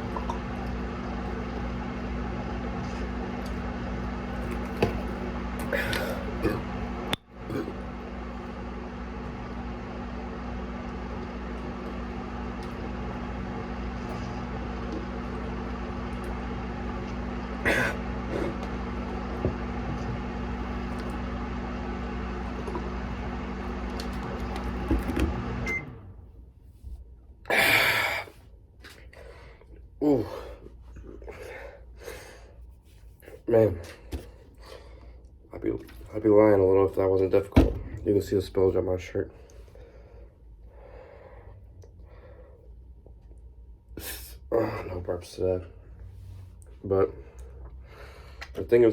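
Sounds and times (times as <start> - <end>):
microwave oven humming: 0.0 - 48.9
loud breath: 47.8 - 48.5.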